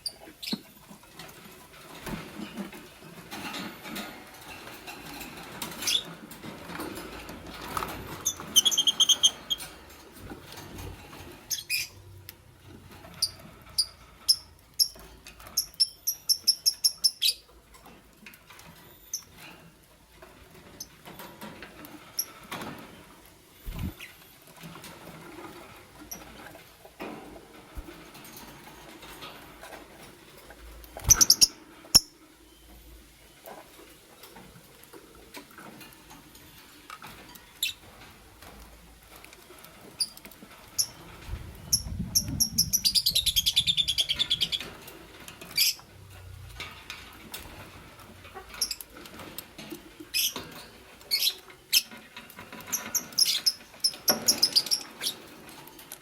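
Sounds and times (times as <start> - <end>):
scratching and rustling: 0.0 - 15.7, 17.5 - 32.3, 33.3 - 56.0
bird chirping: 8.2 - 9.7, 15.6 - 17.5, 31.0 - 32.8, 41.6 - 44.7.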